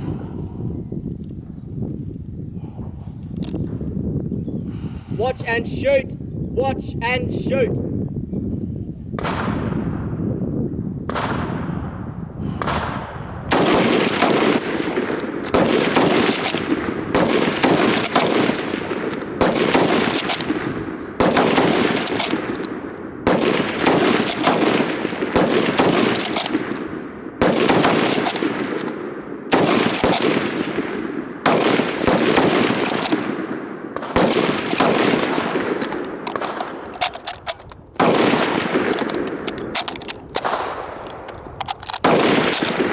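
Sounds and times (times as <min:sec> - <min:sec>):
rifle shots with rolling echo: 0:09.2 - 0:42.9.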